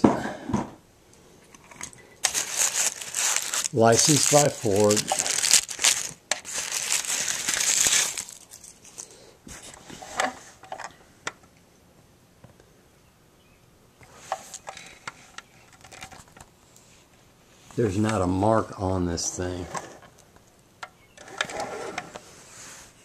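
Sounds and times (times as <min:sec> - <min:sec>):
tissue paper crinkling: 0:02.2 - 0:09.0.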